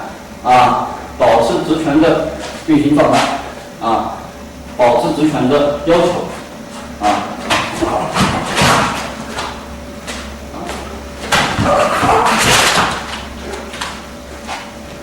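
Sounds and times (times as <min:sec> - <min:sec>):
footsteps shuffling: 0:01.5 - 0:05.3, 0:06.0 - 0:15.0.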